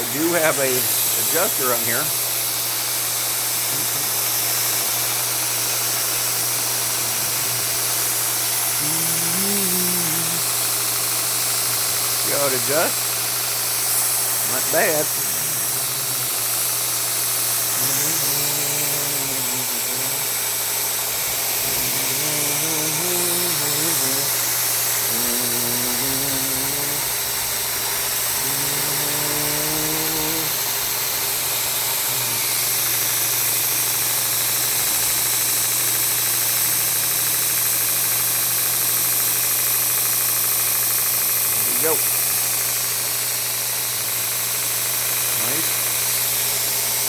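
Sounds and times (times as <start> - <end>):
grinder belt hissing: 0.0 - 47.0
motor hum: 11.5 - 33.3.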